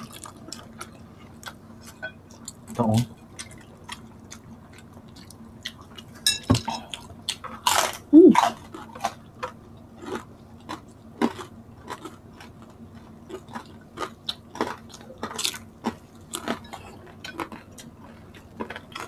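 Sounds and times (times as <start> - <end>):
chewing crispy food: 0.0 - 19.0
dishes clinking: 6.2 - 6.9.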